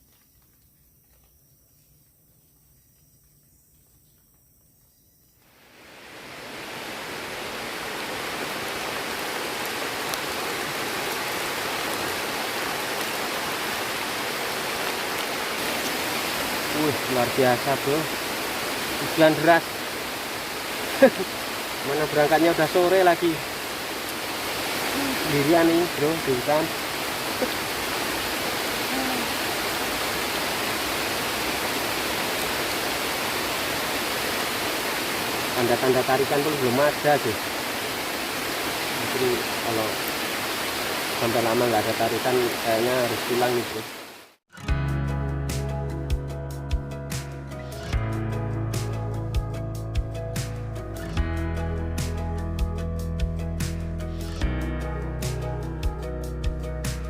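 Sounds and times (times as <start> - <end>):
heavy rain pouring: 5.6 - 44.4.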